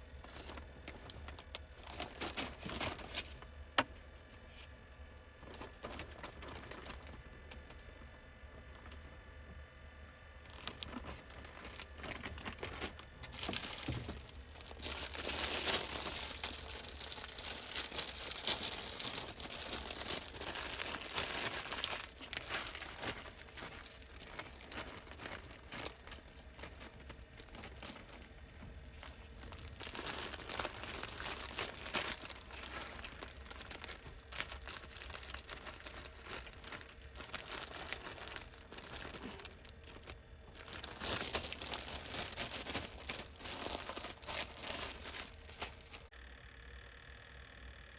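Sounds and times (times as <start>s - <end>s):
packaging crinkling and rustling: 0.0s - 8.0s, 10.4s - 46.1s.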